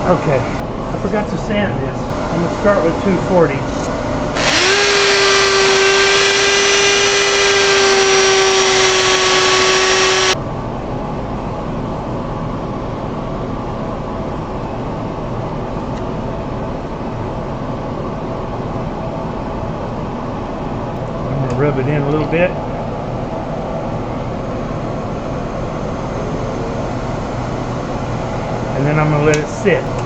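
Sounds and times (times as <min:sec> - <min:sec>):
machine hum: 0:00.0 - 0:30.0
power sander motor whining: 0:04.4 - 0:10.4.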